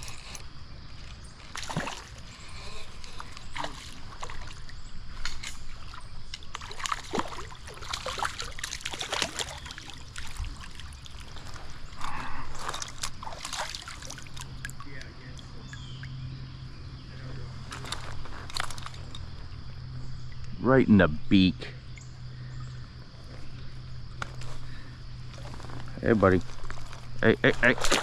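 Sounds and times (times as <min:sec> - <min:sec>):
stream water splashing: 0:00.0 - 0:16.6, 0:26.5 - 0:28.0.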